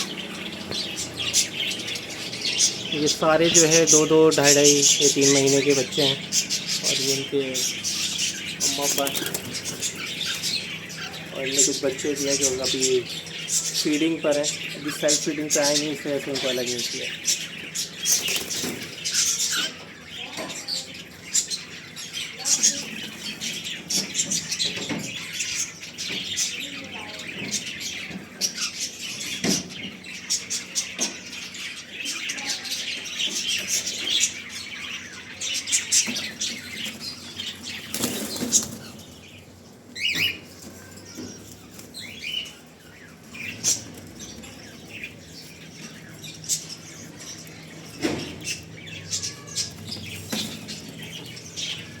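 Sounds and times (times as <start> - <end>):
cockatiels chirping: 0.0 - 52.0
wings flapping: 7.6 - 11.7, 18.0 - 19.2, 36.9 - 39.2.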